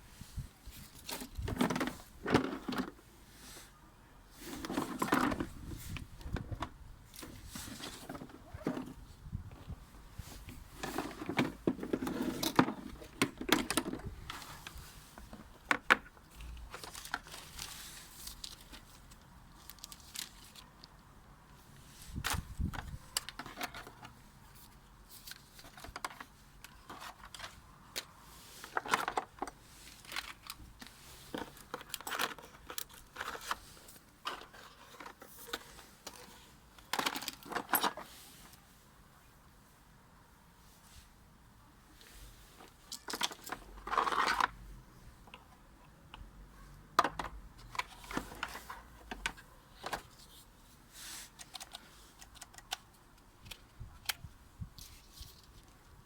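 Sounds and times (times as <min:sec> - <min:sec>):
plastic wrapping crinkling: 0:16.5 - 0:21.0.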